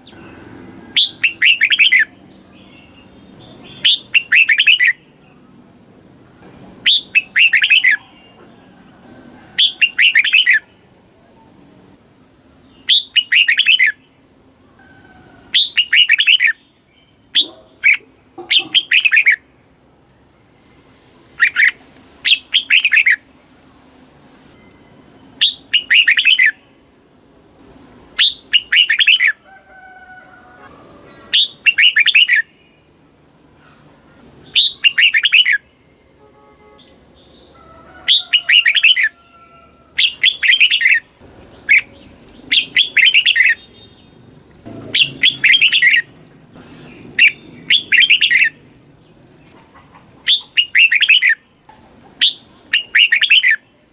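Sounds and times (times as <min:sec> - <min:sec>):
bird warbling song: 0:00.0 - 0:08.5, 0:09.6 - 0:10.8, 0:12.6 - 0:14.8, 0:15.5 - 0:19.4, 0:21.3 - 0:23.3, 0:24.6 - 0:26.8, 0:28.2 - 0:29.6, 0:31.0 - 0:36.0, 0:36.7 - 0:39.2, 0:39.8 - 0:53.9.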